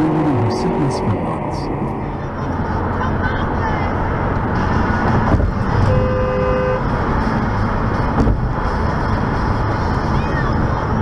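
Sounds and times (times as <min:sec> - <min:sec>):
road and engine noise: 0:00.0 - 0:11.0
car horn: 0:05.7 - 0:07.0.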